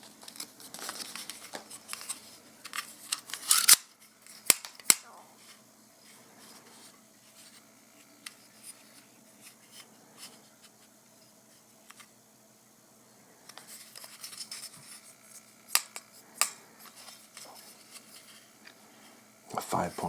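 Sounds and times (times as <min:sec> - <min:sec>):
plastic packaging rustling: 0:00.0 - 0:04.9.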